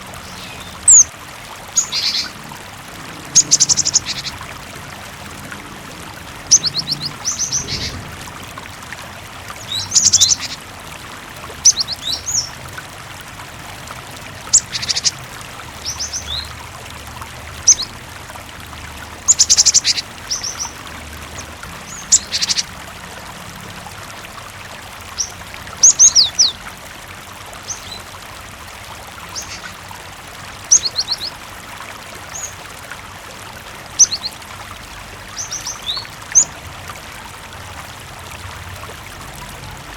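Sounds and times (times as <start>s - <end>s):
running water hiss: 0.0s - 39.9s
bird chirping: 3.3s - 4.4s, 6.4s - 8.0s, 14.5s - 15.2s, 34.0s - 34.3s.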